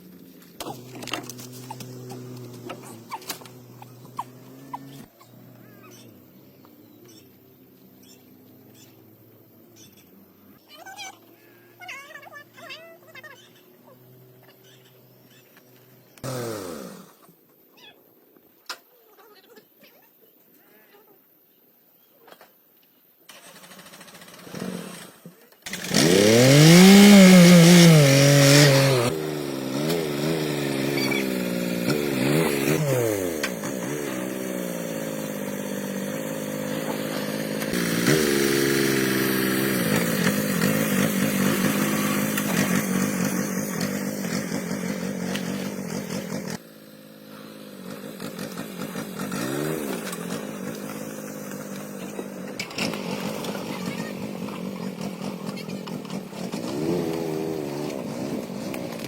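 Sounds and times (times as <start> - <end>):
power tool motor running: 0.6 - 5.8, 25.7 - 59.0.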